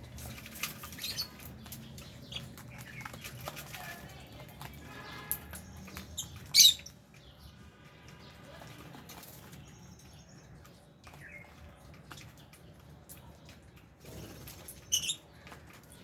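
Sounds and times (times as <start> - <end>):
faint bird chatter: 0.0 - 16.0
parrot chirp: 6.2 - 6.9, 14.8 - 15.2.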